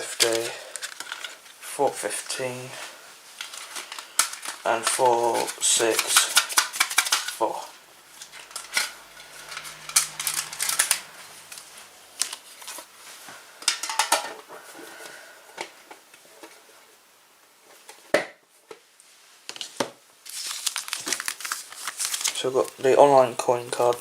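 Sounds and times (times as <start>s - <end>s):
foil packs rustling: 0.0s - 13.9s, 19.6s - 24.0s.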